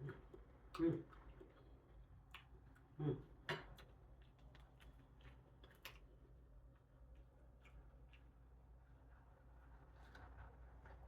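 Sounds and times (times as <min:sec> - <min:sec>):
chewing with mouth clicks: 0:00.0 - 0:08.6.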